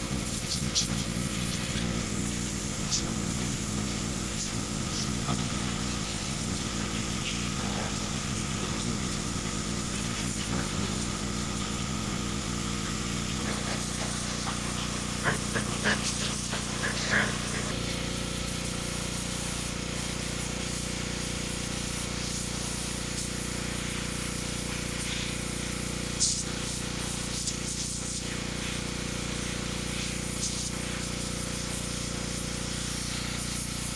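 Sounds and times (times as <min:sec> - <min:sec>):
pressure washer spraying: 0:00.0 - 0:33.9.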